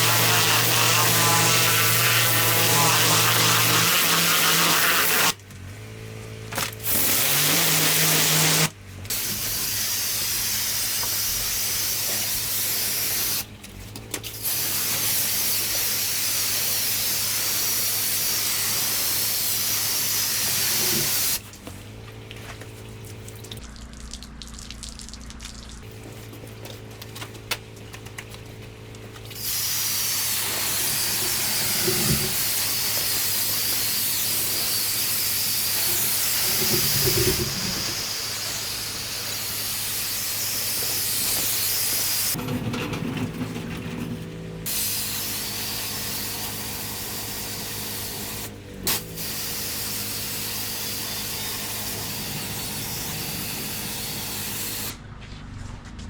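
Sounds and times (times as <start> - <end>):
pressure washer spraying water: 0.0 - 5.4, 6.8 - 13.5, 14.4 - 21.4, 29.3 - 42.4, 44.7 - 55.0.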